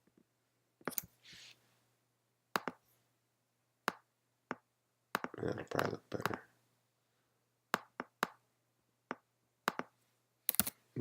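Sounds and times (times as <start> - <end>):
soft hiss: 1.0 - 2.0
computer clicks: 10.5 - 10.8.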